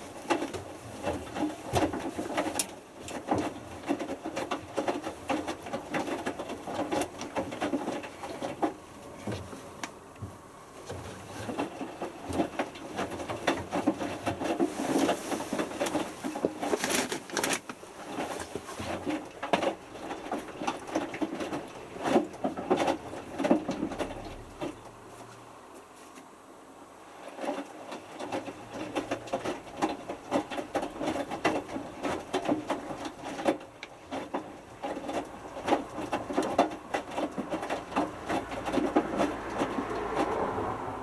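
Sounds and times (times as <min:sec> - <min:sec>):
water sloshing and splashing: 0:00.0 - 0:08.8, 0:10.7 - 0:25.0, 0:27.0 - 0:41.0
washing machine drum tumbling: 0:10.2 - 0:25.0, 0:27.3 - 0:41.0.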